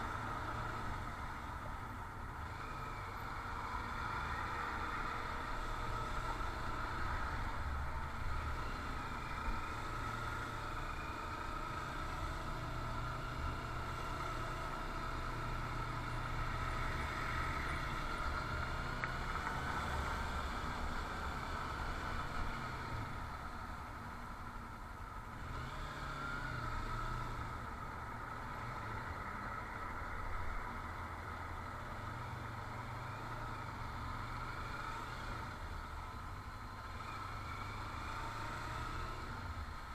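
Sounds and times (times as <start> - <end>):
motorcycle running: 0.0 - 39.9.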